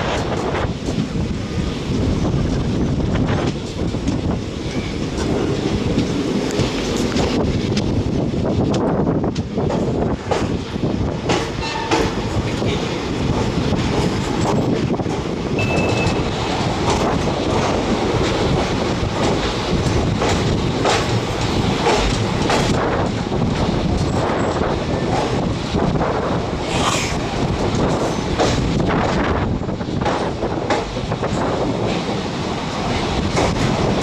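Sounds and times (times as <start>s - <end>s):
train wagons rumbling: 0.0s - 34.0s
wheels clicking over rail joints: 8.6s - 26.2s.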